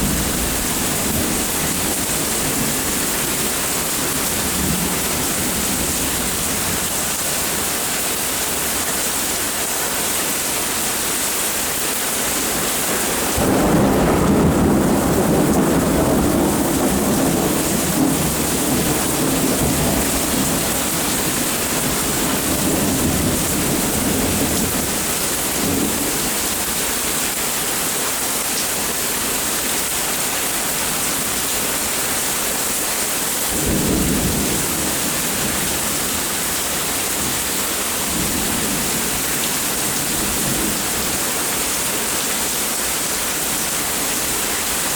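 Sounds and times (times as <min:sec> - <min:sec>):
steady rain: 0:00.0 - 0:44.9
thunder rumbling: 0:12.6 - 0:26.3, 0:33.6 - 0:40.9.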